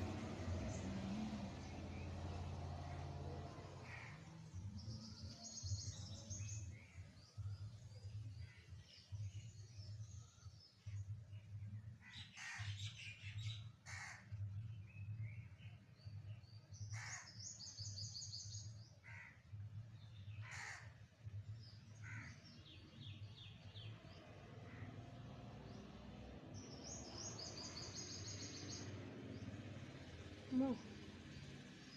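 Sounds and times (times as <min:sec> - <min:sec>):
birds chirping trills: 0:26.6 - 0:29.8.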